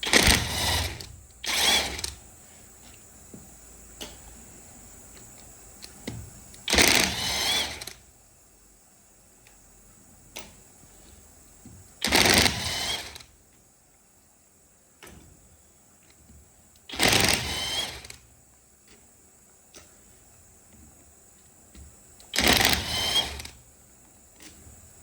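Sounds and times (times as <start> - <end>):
power tool running: 0.0 - 2.2, 6.7 - 8.0, 12.0 - 13.2, 16.9 - 18.2, 22.3 - 23.6.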